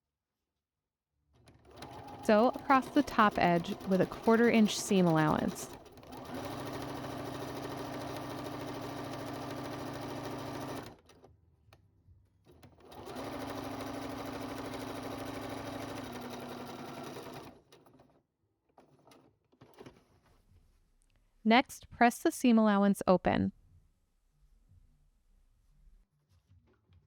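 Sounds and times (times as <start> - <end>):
electric sewing machine stitching: 1.4 - 11.3, 12.5 - 18.1.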